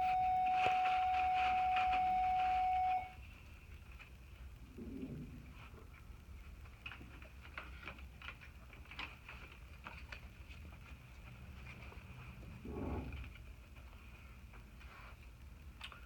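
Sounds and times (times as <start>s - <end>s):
paper tickets rustling: 0.0s - 3.1s.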